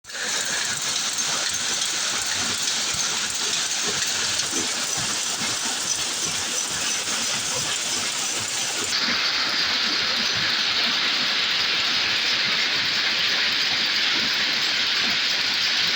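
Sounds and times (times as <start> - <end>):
weaving loom clattering: 0.1 - 9.5.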